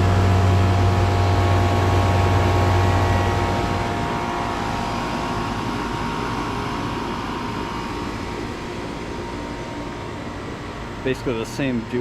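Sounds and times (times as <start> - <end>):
whining tones: 0.0 - 11.1
air conditioner condenser hum: 0.0 - 12.0.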